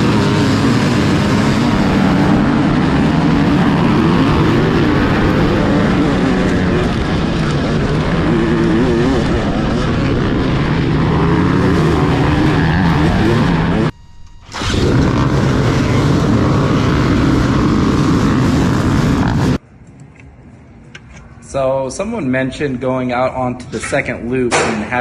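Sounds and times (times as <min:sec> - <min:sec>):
dirt bike engines revving: 0:00.0 - 0:13.9, 0:14.5 - 0:19.6.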